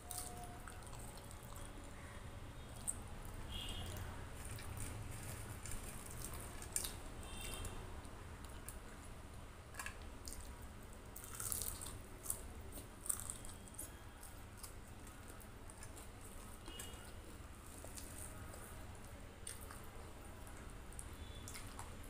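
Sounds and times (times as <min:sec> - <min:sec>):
wet chewing and mouth smacks: 0:00.0 - 0:01.9, 0:11.2 - 0:22.0.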